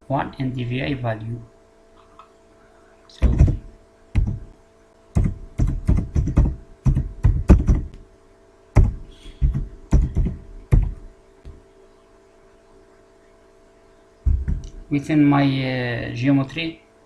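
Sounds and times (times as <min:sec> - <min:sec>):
typing on computer keyboard: 0:04.2 - 0:04.4, 0:05.2 - 0:07.9, 0:08.8 - 0:11.0.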